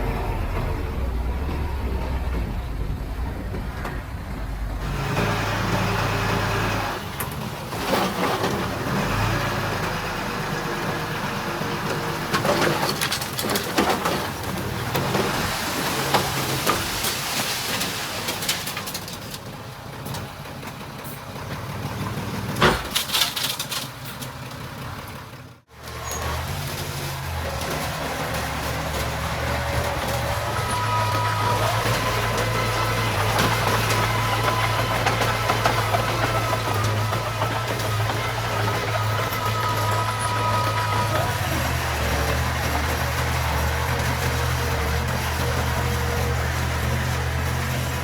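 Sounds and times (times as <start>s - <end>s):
diesel engines running: 0.0s - 48.0s
metal clanks and rattles: 22.5s - 25.2s.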